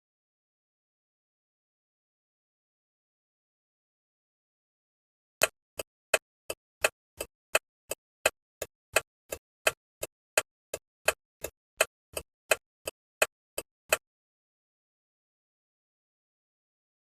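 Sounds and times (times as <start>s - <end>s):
turn signal ticking: 5.4s - 14.0s.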